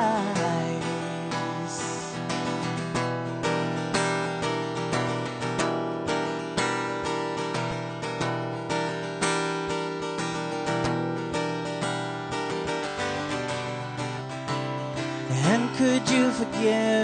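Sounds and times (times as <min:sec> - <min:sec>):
person singing: 0:00.0 - 0:02.7, 0:15.2 - 0:17.0
acoustic guitar strumming: 0:00.0 - 0:17.0.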